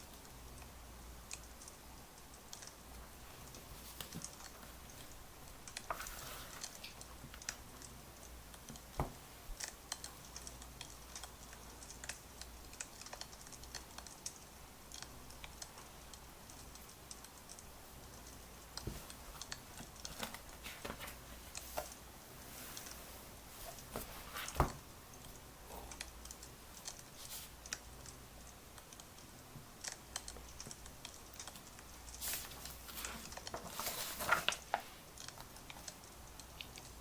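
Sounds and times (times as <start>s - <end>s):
faint steady hiss: 0.0s - 37.0s
wood fire crackling: 0.0s - 37.0s.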